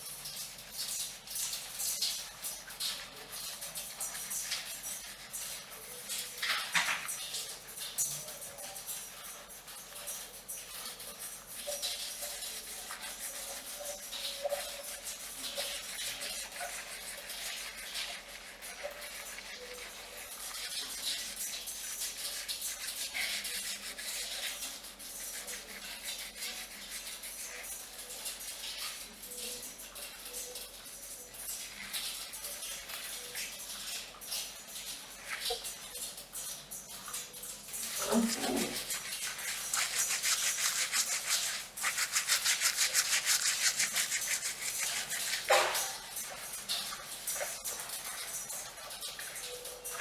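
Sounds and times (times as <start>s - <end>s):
fingernails scratching hair: 38.0s - 45.6s.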